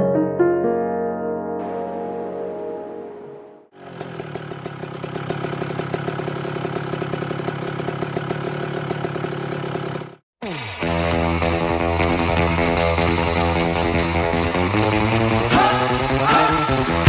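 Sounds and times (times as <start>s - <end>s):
motorcycle engine idling: 3.7s - 17.0s.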